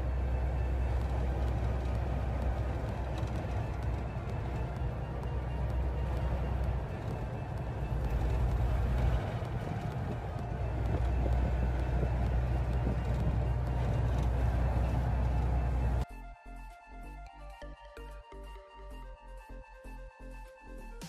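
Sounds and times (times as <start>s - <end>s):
low engine rumble: 0.0s - 16.0s
road noise inside vehicle: 0.0s - 16.1s.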